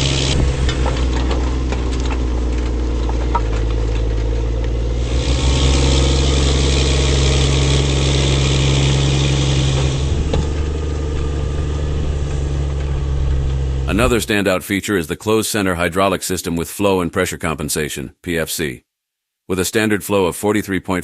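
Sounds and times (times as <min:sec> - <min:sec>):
tractor diesel engine running: 0:00.0 - 0:14.7.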